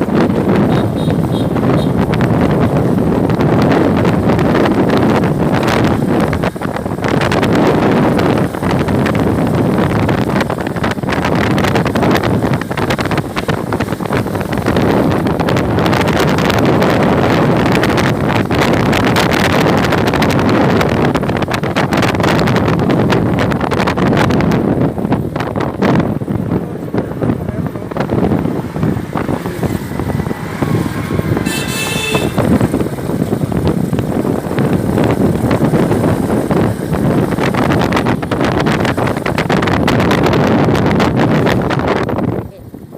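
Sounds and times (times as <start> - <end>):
strong wind buffeting microphone: 0.0 - 42.9
vehicle engine rumble: 0.0 - 42.9
high-pitched horn toot: 0.7 - 2.0, 31.4 - 32.6.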